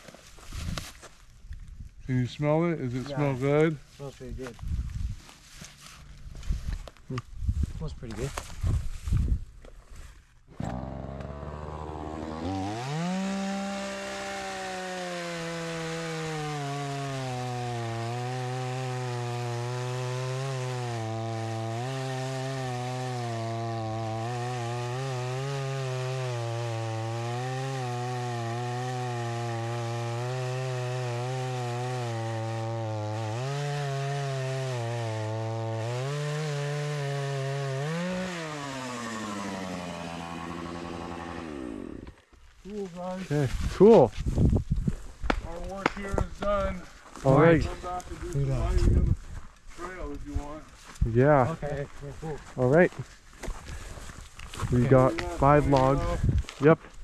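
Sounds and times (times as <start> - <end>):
chainsaw cutting log: 10.5 - 42.4, 45.3 - 48.9, 54.6 - 56.7.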